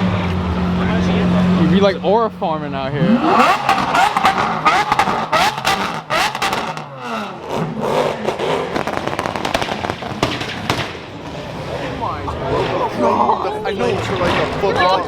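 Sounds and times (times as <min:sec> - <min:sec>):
crowd voices: 0:00.0 - 0:06.4, 0:07.2 - 0:15.0
car engine revving: 0:00.0 - 0:15.0
exhaust cracks and pops: 0:03.6 - 0:06.9, 0:08.2 - 0:11.3.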